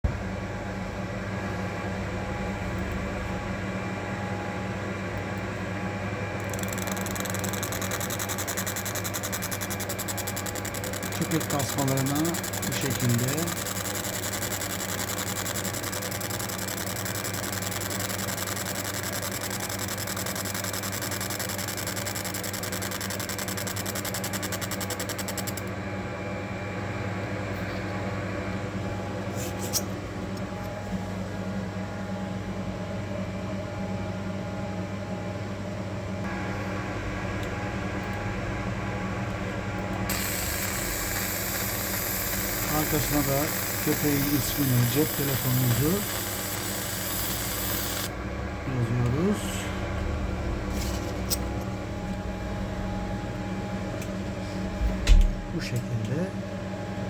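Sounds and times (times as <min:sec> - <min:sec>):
laser machine low hum: 0:00.1 - 0:27.0, 0:36.2 - 0:57.0
high hiss: 0:40.1 - 0:48.1.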